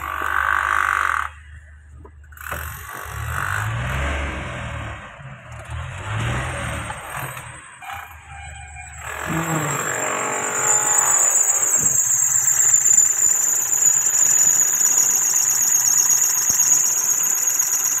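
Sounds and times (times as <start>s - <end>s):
high-pitched whine: 8.1s - 18.0s.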